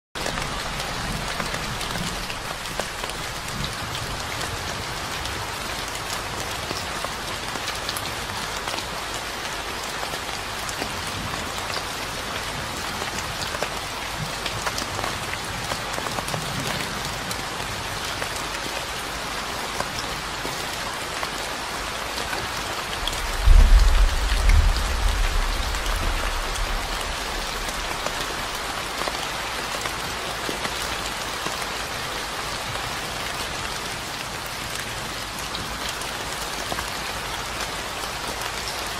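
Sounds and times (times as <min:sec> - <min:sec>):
rain drops ticking: 0:00.2 - 0:38.9
low rumble: 0:23.0 - 0:28.6.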